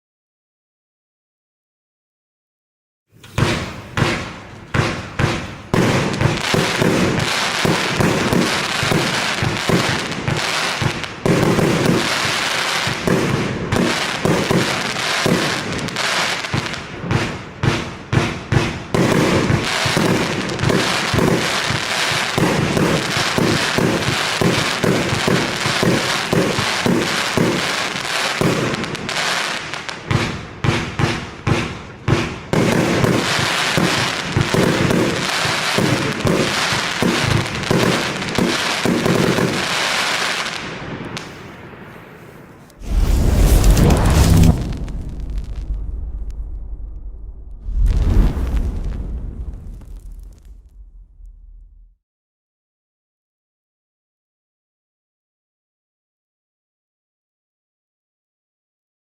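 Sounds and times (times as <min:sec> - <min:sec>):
firework cake firing rapid volley: 0:03.2 - 0:52.0.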